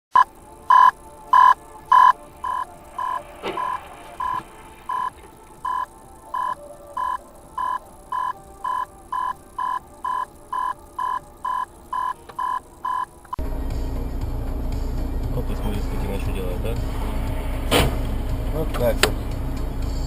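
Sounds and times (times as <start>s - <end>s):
short electronic beeps: 0.1s - 13.4s
car interior rumble: 0.2s - 20.0s.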